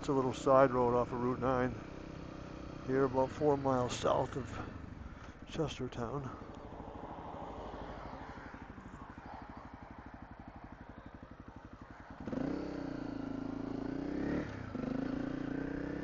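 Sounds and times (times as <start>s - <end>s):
small motorcycle engine puttering: 6.3s - 16.0s.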